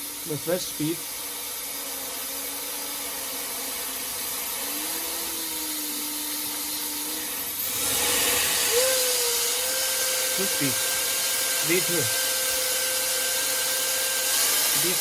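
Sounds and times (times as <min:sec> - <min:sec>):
hair dryer blowing: 0:00.0 - 0:15.0
high motor whine: 0:03.5 - 0:15.0.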